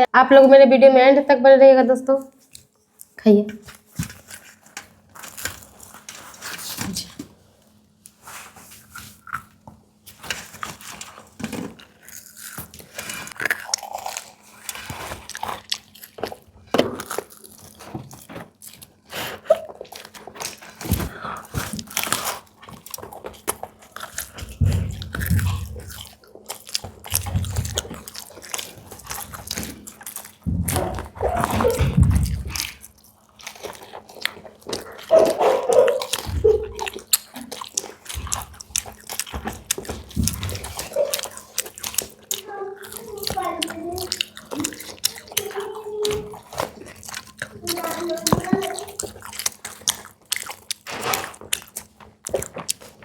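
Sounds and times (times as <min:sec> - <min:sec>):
crisp pastry crunching: 0:02.4 - 0:06.7, 0:08.1 - 0:53.0
mouth clicks and smacks: 0:34.2 - 0:52.9.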